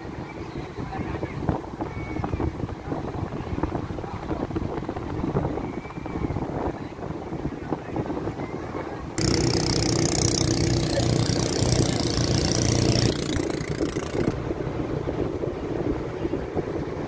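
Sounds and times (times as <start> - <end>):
rushing wind: 0.0 - 17.0
engine running steadily: 9.1 - 17.0
steady hum: 9.2 - 17.0.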